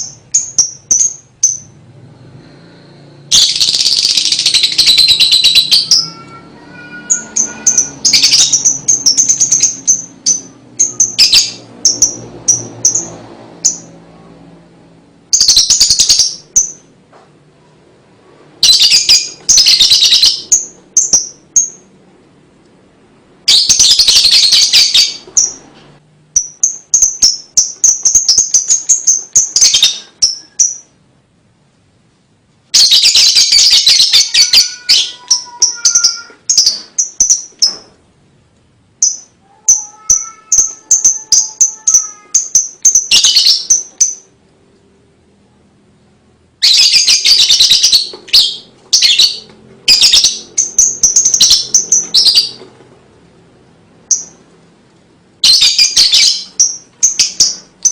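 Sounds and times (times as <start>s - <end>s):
lovebird chatter and chirps: 0.0s - 1.8s, 3.3s - 14.1s, 15.3s - 16.9s, 18.6s - 21.9s, 23.4s - 25.8s, 26.4s - 31.0s, 32.7s - 38.0s, 39.0s - 44.4s, 46.6s - 52.8s, 54.0s - 54.5s, 55.4s - 57.9s.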